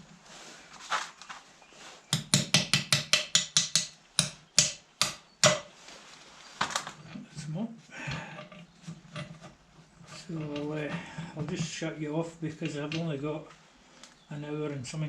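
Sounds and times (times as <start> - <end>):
hammer tapping on metal: 2.1 - 5.7.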